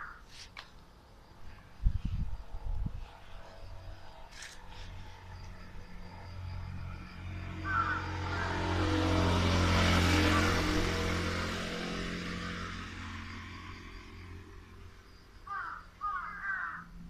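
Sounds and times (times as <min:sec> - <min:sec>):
crow cawing: 0:00.0 - 0:00.2, 0:07.6 - 0:08.8, 0:15.4 - 0:17.0
vehicle passing by: 0:01.8 - 0:17.0.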